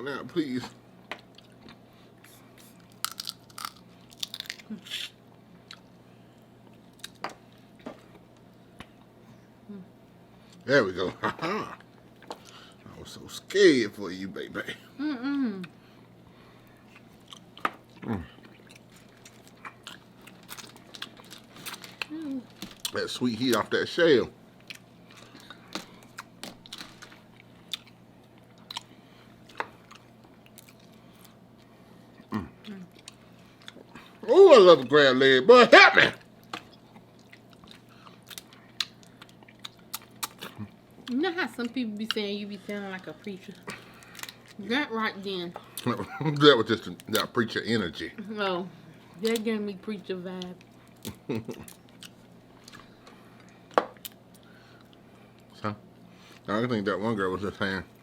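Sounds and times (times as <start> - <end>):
crab shells cracking: 2.8 - 4.7, 24.7 - 28.9
chewing: 16.8 - 23.0, 24.6 - 34.2, 36.2 - 41.2, 50.6 - 55.5.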